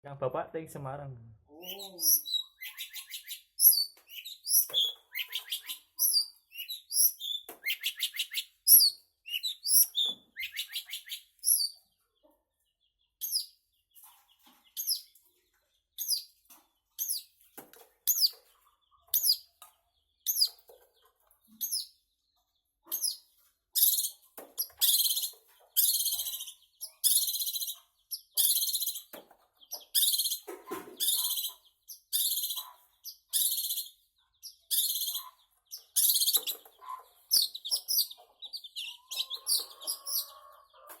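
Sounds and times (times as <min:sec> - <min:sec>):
bird chirping and trilling: 0:01.5 - 0:11.8, 0:13.2 - 0:13.6, 0:14.8 - 0:15.2, 0:16.0 - 0:16.3, 0:18.1 - 0:18.5, 0:19.1 - 0:19.5, 0:20.2 - 0:20.7, 0:21.5 - 0:22.0, 0:22.9 - 0:41.0
harsh rasping bird calls: 0:01.6 - 0:11.8, 0:29.7 - 0:41.0.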